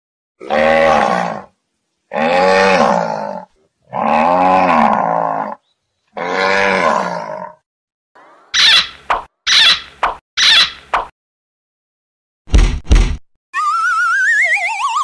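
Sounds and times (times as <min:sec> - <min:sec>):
farm animal calling: 0:08.2 - 0:10.8.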